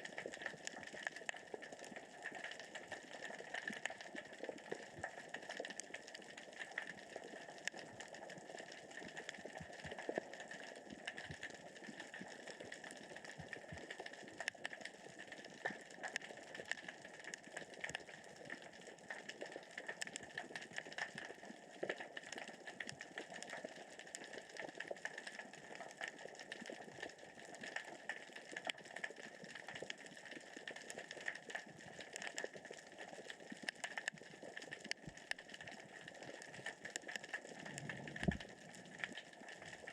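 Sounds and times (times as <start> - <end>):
underwater rocks clicking: 29.7 - 39.7.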